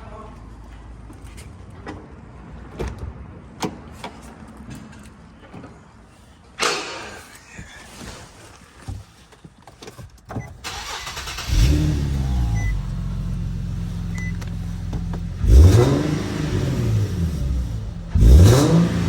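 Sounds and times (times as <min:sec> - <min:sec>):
car engine starting and idling: 0:10.3 - 0:19.0
car engine revving: 0:10.7 - 0:19.0.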